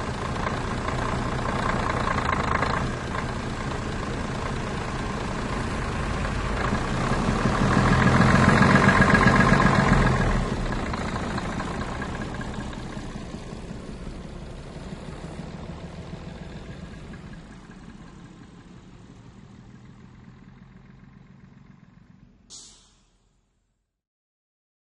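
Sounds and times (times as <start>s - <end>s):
bus engine running: 0.0s - 23.2s
brief high hiss: 22.5s - 23.4s.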